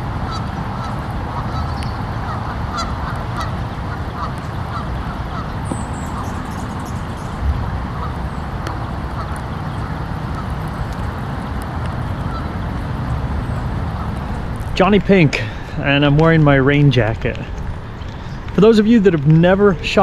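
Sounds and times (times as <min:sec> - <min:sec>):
waterfowl honking: 0:00.0 - 0:14.9
steady low rumble: 0:00.0 - 0:20.0.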